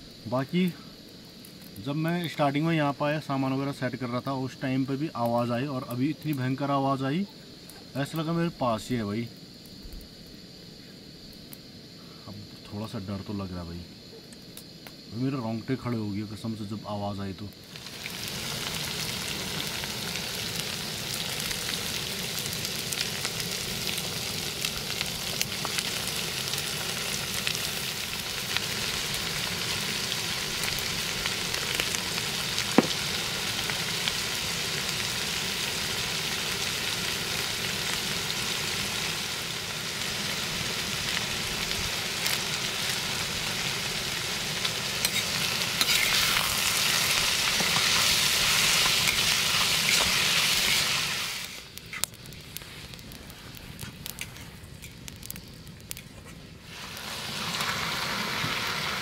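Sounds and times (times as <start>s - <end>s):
food sizzling in hot oil: 16.0s - 59.0s.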